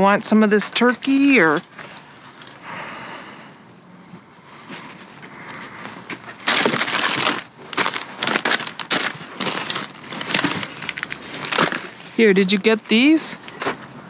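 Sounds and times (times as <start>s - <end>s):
plastic packaging crinkling: 6.4s - 13.8s.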